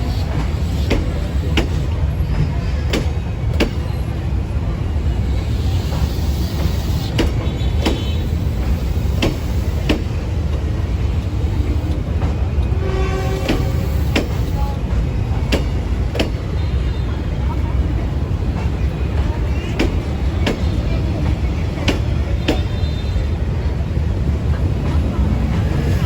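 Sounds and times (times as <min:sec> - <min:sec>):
wheel clacks over rail joints: 0:00.0 - 0:04.1, 0:05.9 - 0:16.7, 0:18.4 - 0:22.9
train rumble: 0:00.0 - 0:26.0.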